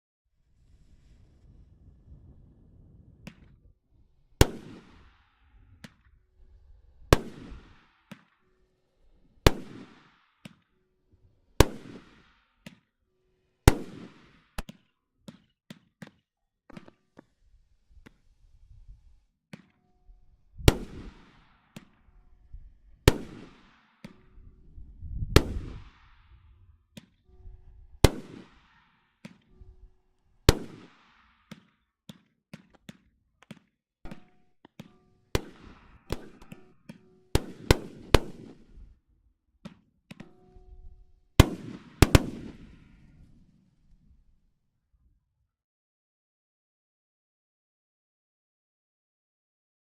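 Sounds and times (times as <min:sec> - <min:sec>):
small firework pops: 0:03.2 - 0:03.6, 0:04.4 - 0:06.2, 0:07.1 - 0:08.4, 0:09.5 - 0:10.8, 0:11.6 - 0:12.9, 0:13.7 - 0:17.4, 0:18.0 - 0:18.3, 0:19.5 - 0:19.8, 0:20.7 - 0:22.1, 0:23.1 - 0:24.4, 0:25.3 - 0:27.2, 0:28.0 - 0:29.6, 0:30.5 - 0:39.0, 0:39.6 - 0:40.5, 0:41.4 - 0:43.4
firework bangs: 0:07.1 - 0:08.3, 0:20.6 - 0:22.0, 0:23.1 - 0:24.3, 0:25.3 - 0:26.3, 0:28.0 - 0:29.5, 0:30.5 - 0:38.8, 0:41.4 - 0:43.4.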